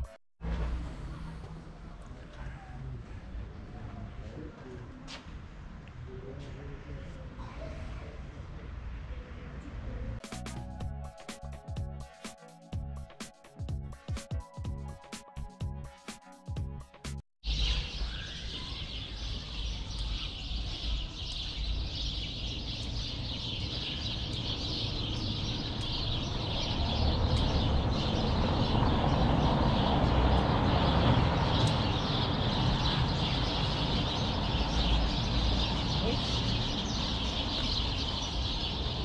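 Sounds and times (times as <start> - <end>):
music: 10.2 - 17.2
small birds chirping: 17.4 - 39.0.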